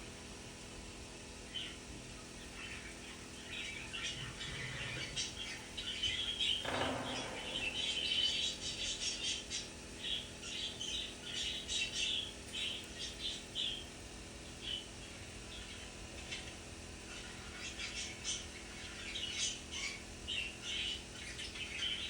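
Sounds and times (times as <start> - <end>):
budgerigar chirping and squawking: 2.4 - 13.9.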